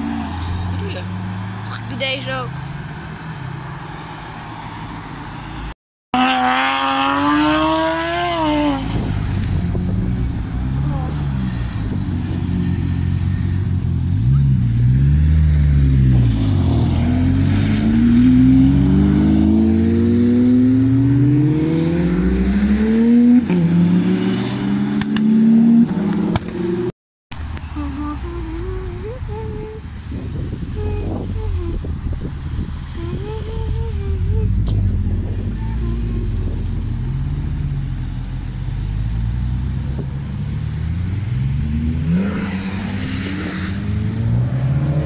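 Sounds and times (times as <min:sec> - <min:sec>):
sports car engines revving: 0:06.2 - 0:26.9, 0:30.0 - 0:45.0.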